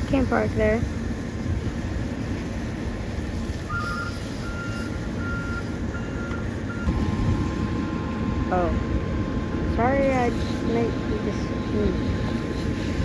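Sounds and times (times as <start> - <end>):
low truck engine rumble: 0.0 - 13.0
truck reverse alarm beeping: 3.7 - 9.5.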